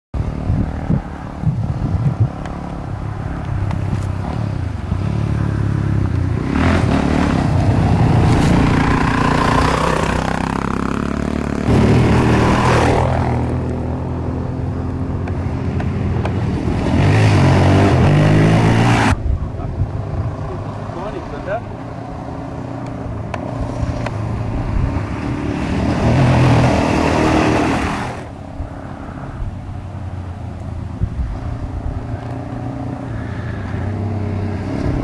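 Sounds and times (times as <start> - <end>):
dirt bike engine revving: 4.2 - 19.2, 23.5 - 28.3.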